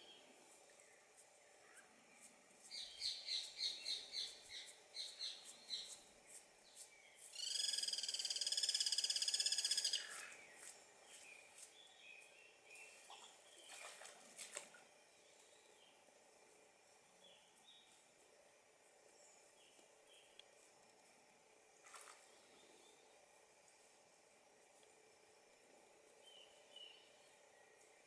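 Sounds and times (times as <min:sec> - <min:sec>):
loud buzzy pulsing bird call: 0:07.3 - 0:10.4.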